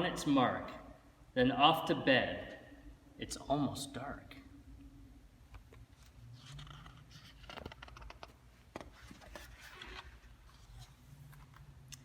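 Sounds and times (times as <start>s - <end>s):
paper pages rustling: 5.8s - 12.0s.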